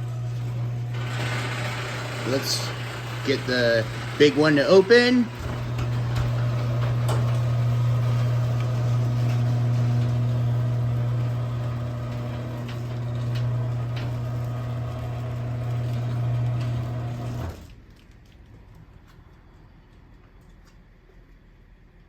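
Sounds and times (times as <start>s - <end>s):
garage door opener motor hum: 0.0s - 17.8s.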